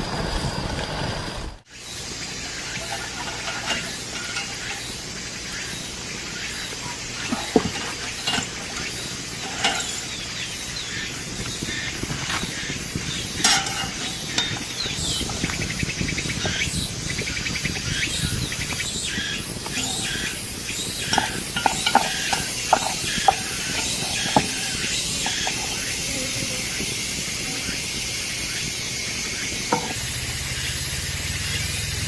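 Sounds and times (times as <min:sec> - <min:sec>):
insect trilling: 0:01.7 - 0:32.0
utensil stirring and clinking: 0:02.4 - 0:05.6, 0:06.4 - 0:15.5, 0:19.1 - 0:27.7.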